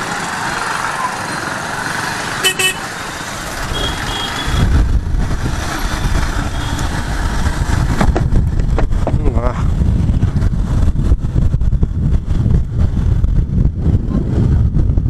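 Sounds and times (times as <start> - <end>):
motorcycle engine rumble: 0.0 - 15.0
road traffic: 0.0 - 15.0
motorcycle horn toots: 2.3 - 2.9, 3.6 - 4.7, 6.4 - 6.9.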